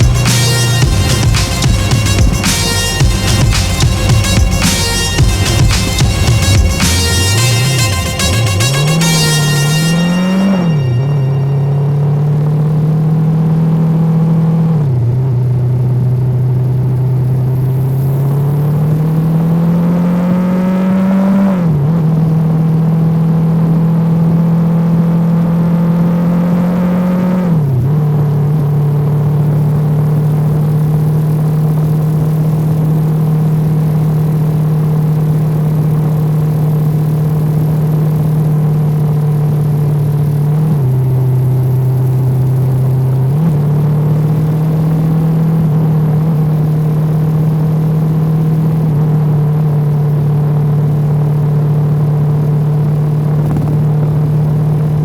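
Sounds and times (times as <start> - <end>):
motorcycle engine shifting gears: 51.0 - 55.0.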